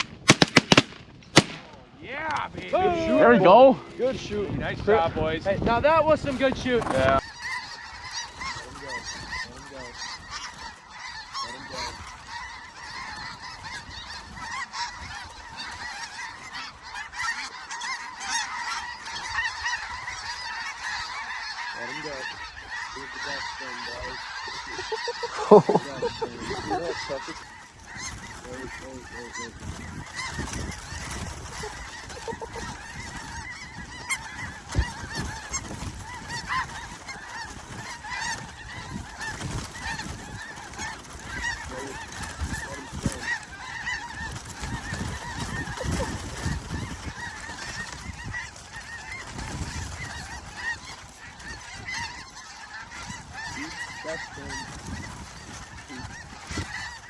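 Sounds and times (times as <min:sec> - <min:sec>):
geese honking in chorus: 0:00.0 - 0:57.0.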